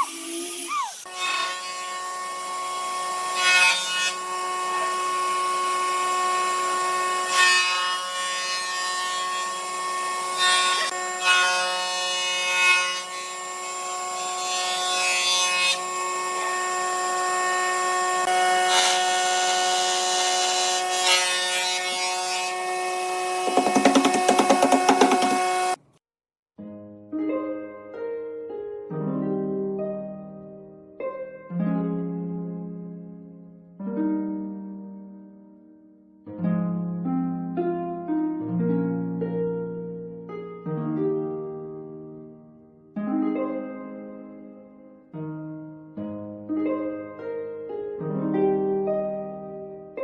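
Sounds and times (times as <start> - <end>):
power tool cutting wood: 0.0 - 25.8.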